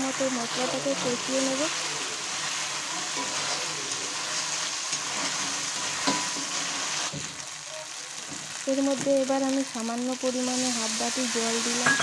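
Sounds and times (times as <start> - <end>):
spice paste sizzling in oil: 0.0 - 12.0
metal spatula scraping a pan: 0.5 - 7.2.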